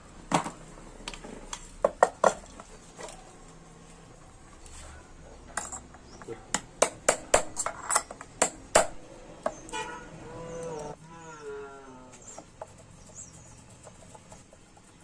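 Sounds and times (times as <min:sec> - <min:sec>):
metal tools clinking: 0:05.5 - 0:06.3, 0:07.5 - 0:08.3.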